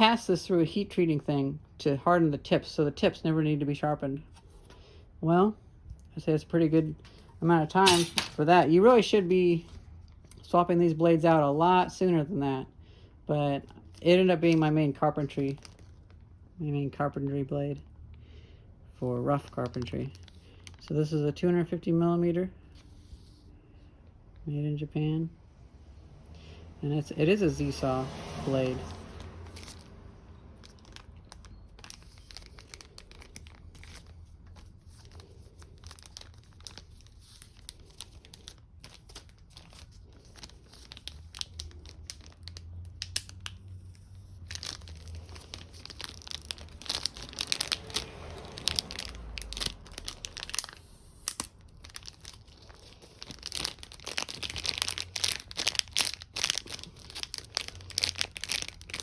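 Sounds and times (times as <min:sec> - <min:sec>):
packaging crinkling and tearing: 0:13.8 - 0:16.4, 0:19.4 - 0:20.8, 0:28.8 - 0:30.0, 0:30.6 - 0:59.0.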